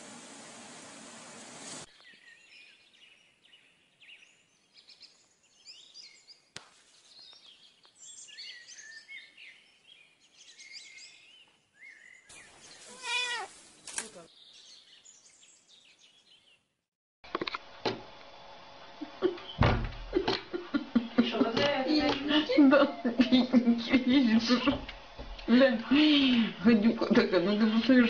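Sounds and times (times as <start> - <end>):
songbirds chirping: 1.9 - 16.7, 26.3 - 28.0.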